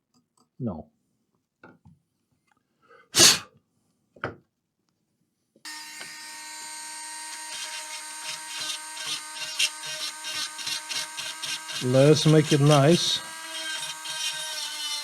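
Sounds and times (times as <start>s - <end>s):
rotary tool whining: 5.7s - 15.0s.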